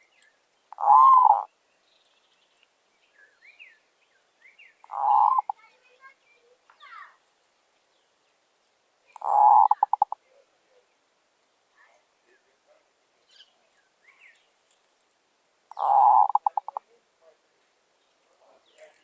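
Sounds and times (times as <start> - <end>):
small birds chirping: 0.0 - 19.0
dove cooing: 0.7 - 1.5, 4.8 - 5.6, 9.2 - 10.2, 15.7 - 16.9.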